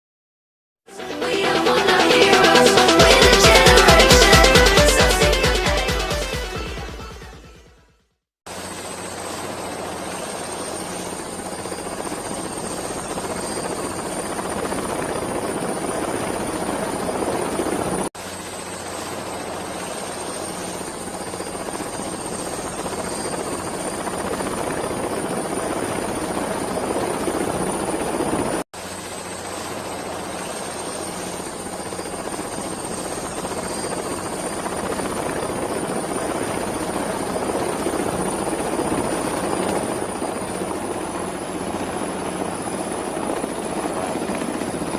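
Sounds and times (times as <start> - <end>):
helicopter rotor and engine whine: 8.5 - 44.9.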